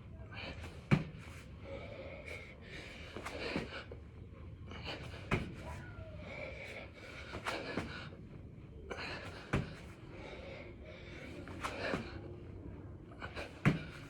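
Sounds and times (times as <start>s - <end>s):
man breathing heavily: 0.1s - 14.0s
thuds on the floor: 0.9s - 1.2s, 9.6s - 9.9s, 13.6s - 14.0s.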